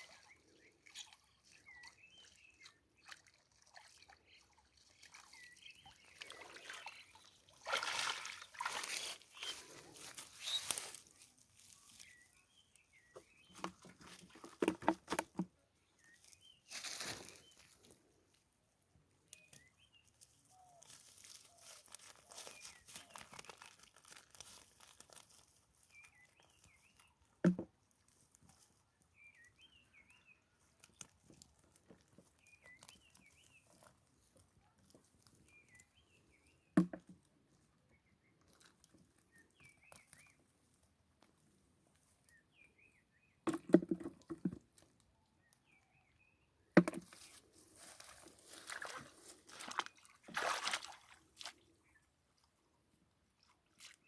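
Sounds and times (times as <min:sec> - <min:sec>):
splashing and rustling: 0:00.0 - 0:12.2, 0:13.1 - 0:17.8, 0:20.8 - 0:27.1, 0:46.8 - 0:51.9.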